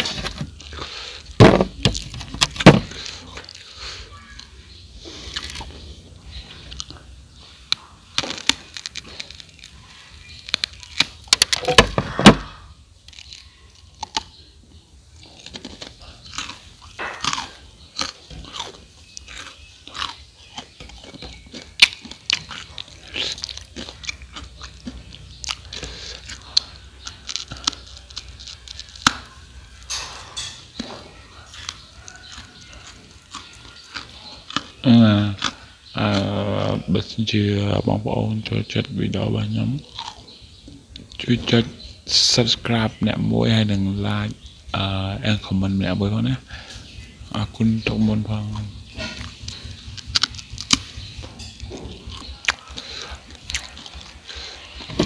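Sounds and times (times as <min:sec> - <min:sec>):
crunching crispy rice cakes: 0:00.0 - 0:55.0.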